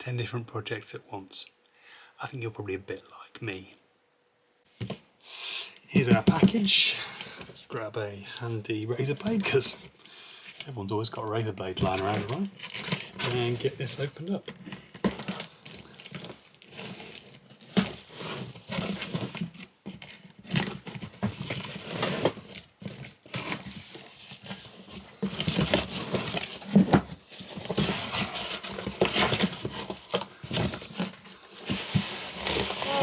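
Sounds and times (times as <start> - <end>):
packing rustling and crinkling: 11.4 - 33.0
cardboard parcel cut with blade: 21.5 - 33.0.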